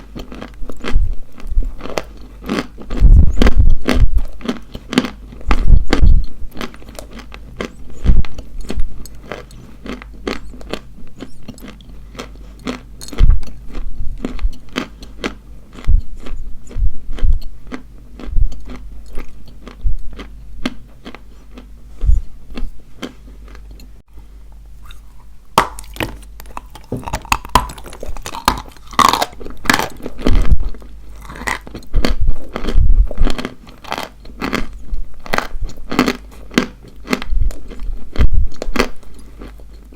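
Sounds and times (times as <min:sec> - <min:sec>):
chalk being chewed: 0:24.8 - 0:39.9.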